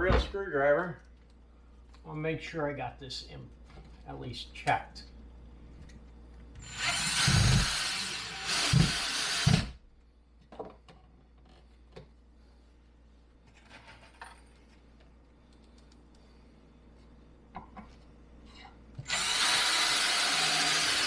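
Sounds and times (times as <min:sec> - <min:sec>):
power screwdriver driving screws: 0:06.6 - 0:09.7.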